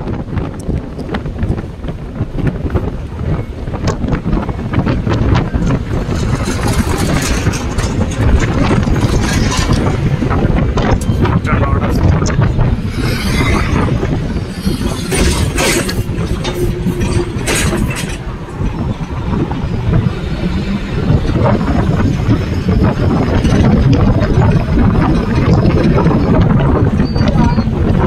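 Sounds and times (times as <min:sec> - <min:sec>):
train wheels rumbling on rails: 0:00.0 - 0:28.0
wind: 0:00.0 - 0:28.0
sharp clatters: 0:05.4 - 0:27.6.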